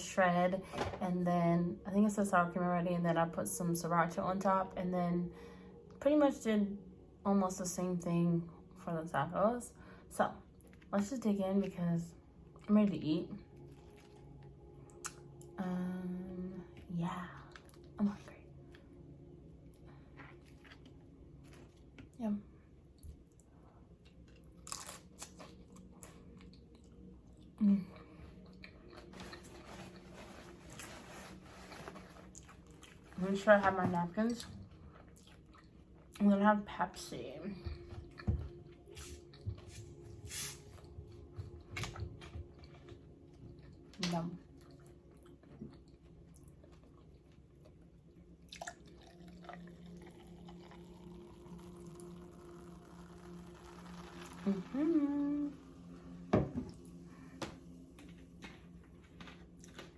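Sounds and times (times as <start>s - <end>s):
faint low hum: 0.0s - 59.9s
chewing and crunching chips: 13.4s - 15.6s, 17.3s - 22.2s, 22.8s - 33.2s, 34.3s - 36.2s, 40.7s - 54.4s, 58.0s - 59.9s
wet chewing and mouth clicks: 34.4s - 36.2s.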